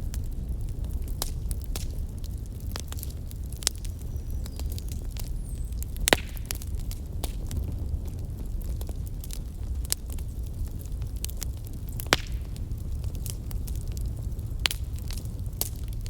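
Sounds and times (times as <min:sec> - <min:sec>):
wood fire crackling: 0:00.0 - 0:16.0
loud fire pop: 0:06.0 - 0:07.4, 0:12.0 - 0:13.6.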